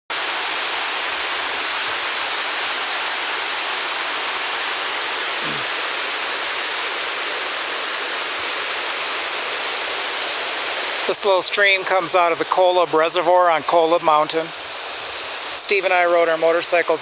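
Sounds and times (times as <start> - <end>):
stream rushing down waterfall: 0.1 - 17.0.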